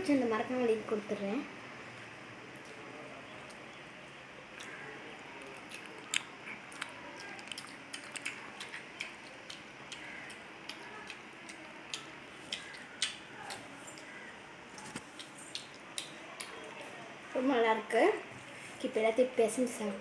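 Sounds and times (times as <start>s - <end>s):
person chewing food: 4.5s - 16.7s.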